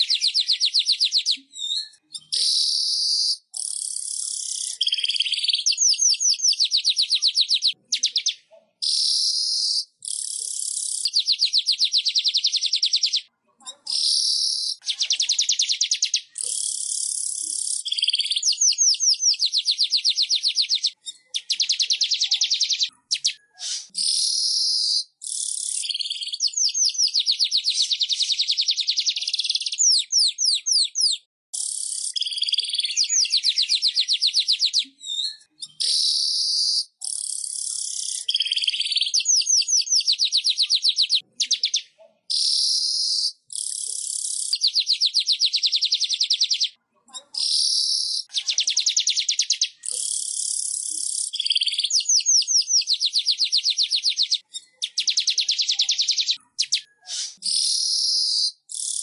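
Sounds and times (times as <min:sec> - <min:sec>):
weaver bird buzzy chatter: 0:01.9 - 0:59.0.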